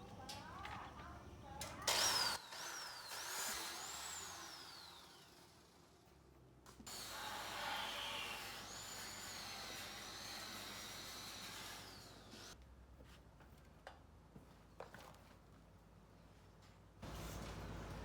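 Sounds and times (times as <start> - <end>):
power tool whining: 1.9 - 5.8, 6.9 - 12.6.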